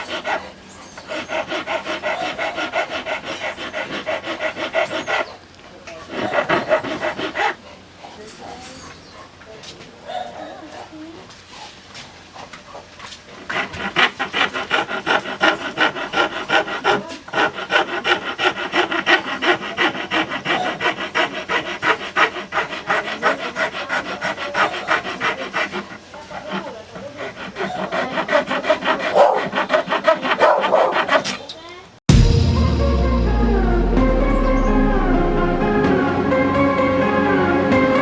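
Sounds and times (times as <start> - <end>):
knife being filed: 0.0 - 7.6, 13.4 - 31.6.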